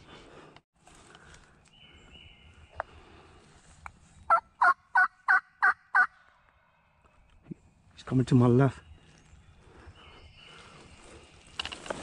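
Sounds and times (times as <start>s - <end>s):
turkey yelps: 4.6s - 6.1s.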